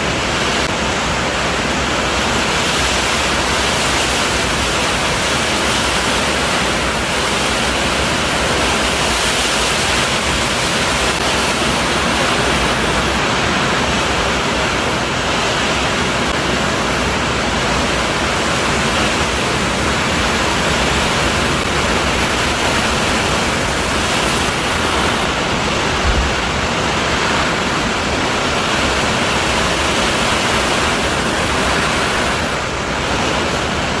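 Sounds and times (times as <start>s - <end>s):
strong wind and rain: 0.0s - 34.0s
low thump: 26.0s - 26.4s.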